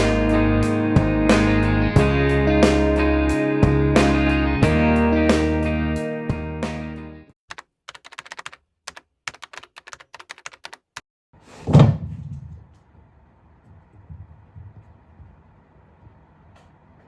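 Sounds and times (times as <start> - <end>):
loud thump: 11.6 - 12.7.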